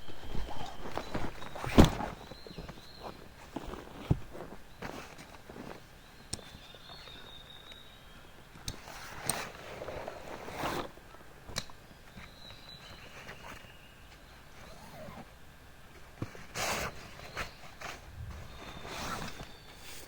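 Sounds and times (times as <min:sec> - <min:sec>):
rustling and shuffling: 0:00.0 - 0:07.8, 0:08.4 - 0:20.0.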